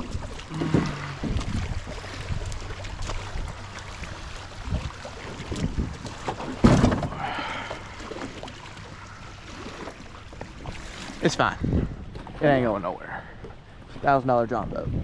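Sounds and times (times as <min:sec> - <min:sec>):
knocks and clatter on metal boat: 0:00.0 - 0:03.8, 0:04.6 - 0:07.3, 0:09.8 - 0:12.6
wind on microphone: 0:00.0 - 0:06.9, 0:11.3 - 0:12.2, 0:14.6 - 0:15.0
low steady hum: 0:00.0 - 0:12.3
loud thump: 0:06.6 - 0:07.1.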